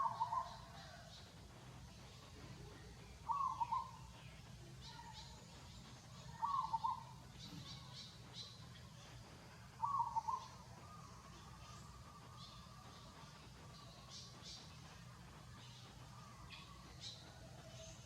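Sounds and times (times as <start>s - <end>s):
bird calling: 0.0s - 0.9s, 3.2s - 4.0s, 6.2s - 7.9s, 9.8s - 13.0s.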